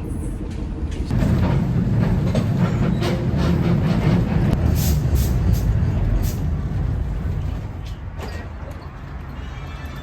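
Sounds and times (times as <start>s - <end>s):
trolley rumbling on rails: 0.0s - 10.0s.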